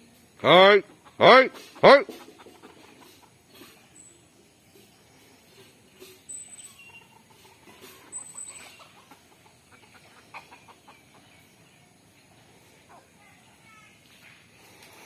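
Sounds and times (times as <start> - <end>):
chickens calling quietly: 0.0 - 15.0
short high-pitched squeaks: 4.8 - 9.1.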